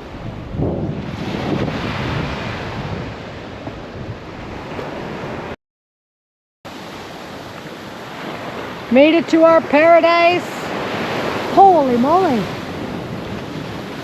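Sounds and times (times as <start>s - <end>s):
ocean surf on beach: 0.0s - 5.6s, 6.7s - 14.0s
wind buffeting microphone: 0.0s - 5.6s, 6.9s - 14.0s.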